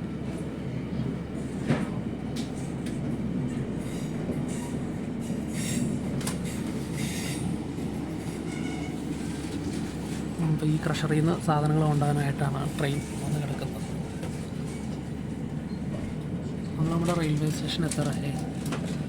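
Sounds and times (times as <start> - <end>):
train rumbling on track: 0.0 - 19.0
high wheel squeals: 8.5 - 9.0.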